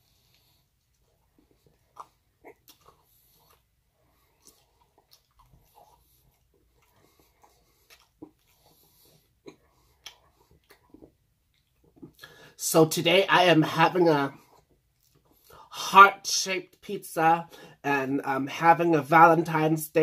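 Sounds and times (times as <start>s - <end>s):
faint chewing mouth clicks: 0.2s - 12.3s, 14.5s - 15.6s.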